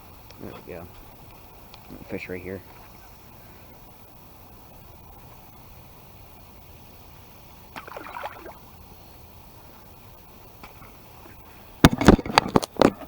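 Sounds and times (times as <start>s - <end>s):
water splashing: 7.7s - 8.7s
sharp knocks and thumps: 11.8s - 13.0s.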